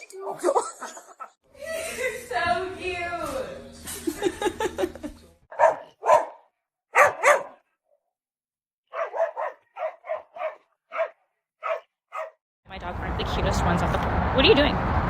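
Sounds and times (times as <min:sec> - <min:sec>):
dog barking: 0:05.5 - 0:07.7, 0:08.9 - 0:12.4.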